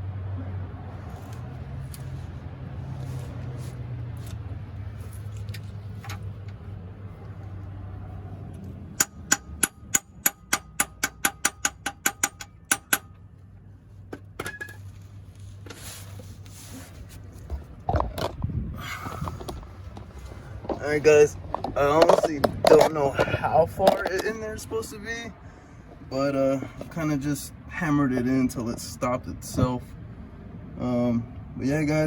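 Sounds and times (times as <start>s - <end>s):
hammer striking metal: 9.0s - 13.2s.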